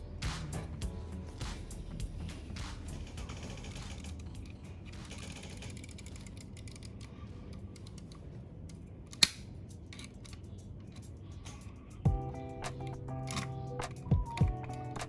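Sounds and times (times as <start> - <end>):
mechanical clicking and ticking: 2.1 - 8.2.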